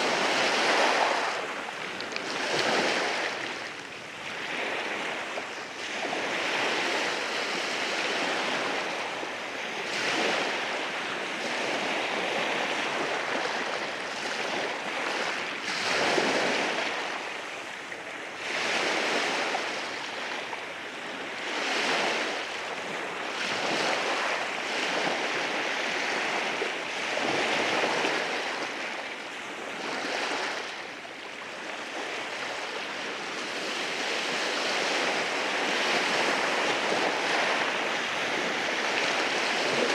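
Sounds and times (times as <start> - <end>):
waves washing over rocks: 0.0 - 5.3.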